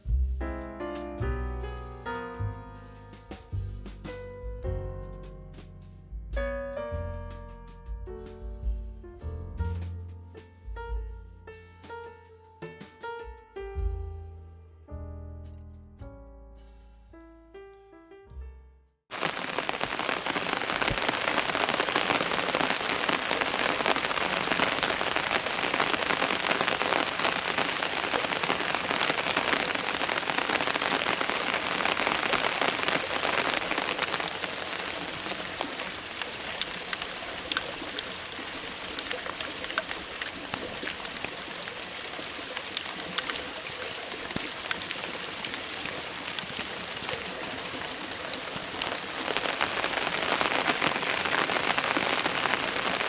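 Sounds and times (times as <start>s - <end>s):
raindrops ticking: 19.1s - 53.0s
steady rain: 19.1s - 53.0s.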